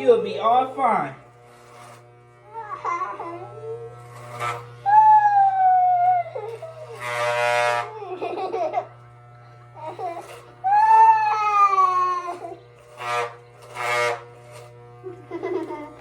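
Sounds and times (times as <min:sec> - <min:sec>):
electric hair clippers buzzing: 0:00.0 - 0:16.0
boy crying and wailing: 0:02.5 - 0:03.9, 0:04.8 - 0:07.0, 0:09.8 - 0:12.6
boy screaming: 0:04.8 - 0:06.6, 0:10.6 - 0:12.5.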